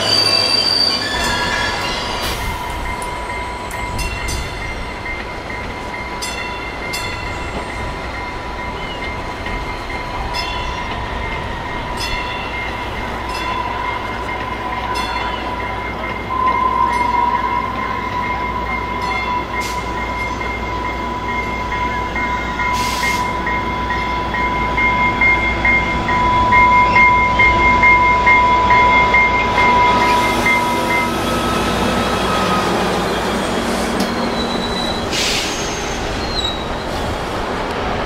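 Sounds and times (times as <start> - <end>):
high-pitched wheel squeal: 0.0 - 3.0, 29.5 - 37.0
train rumble: 0.0 - 38.0.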